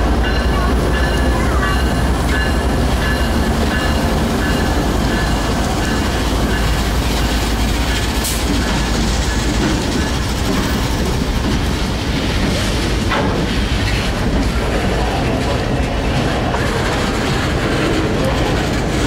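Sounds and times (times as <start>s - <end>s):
diesel locomotive passing: 0.0s - 19.0s
freight car wheels clacking on rails: 0.0s - 19.0s.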